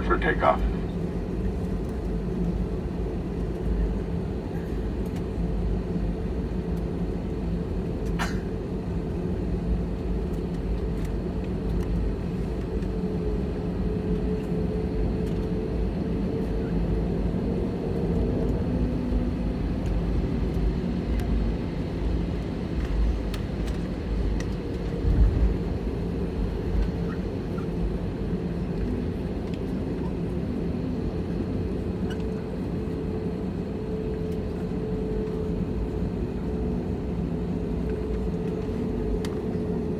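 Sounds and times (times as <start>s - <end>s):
airplane cabin hum: 0.0s - 39.9s
low rumble: 22.8s - 26.9s.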